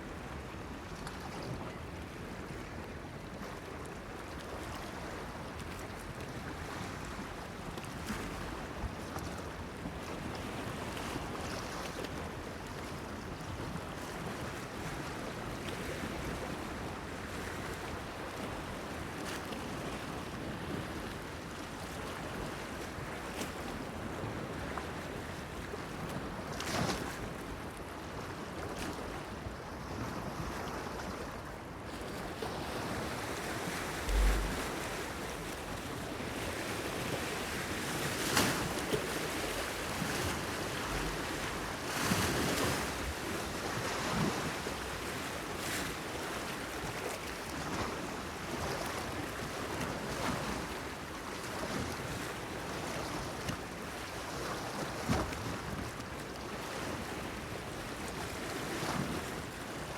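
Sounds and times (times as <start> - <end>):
wind: 0.0 - 59.9
waves washing against pier: 32.1 - 45.1
water splash: 33.8 - 36.0.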